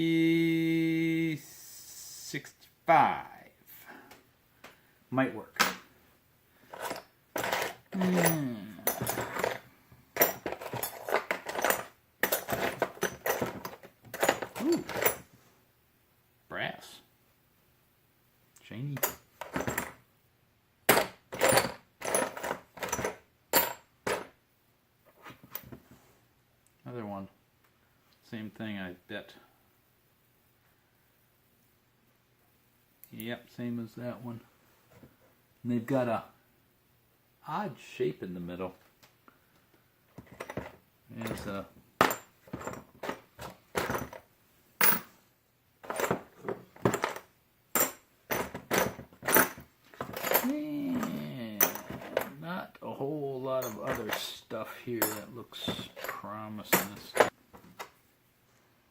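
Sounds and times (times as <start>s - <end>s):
metal washers clinking: 6.7s - 15.2s, 20.9s - 24.3s, 40.2s - 44.2s, 44.8s - 45.2s, 45.8s - 52.4s, 53.6s - 54.4s, 55.0s - 57.9s.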